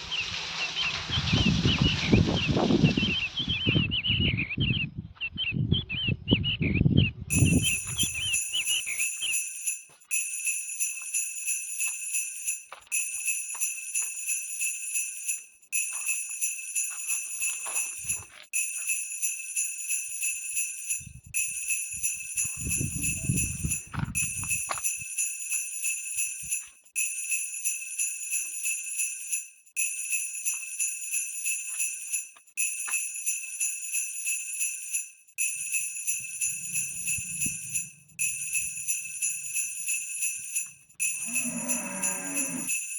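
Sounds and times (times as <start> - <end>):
bells jingling: 0.0 - 3.6, 7.3 - 42.9
low rumble: 36.4 - 39.3.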